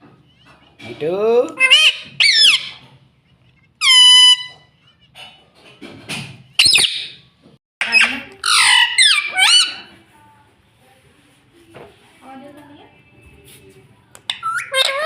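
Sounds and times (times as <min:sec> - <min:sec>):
parrot squawking and calling: 0:01.5 - 0:05.2, 0:06.6 - 0:10.0, 0:14.3 - 0:15.0.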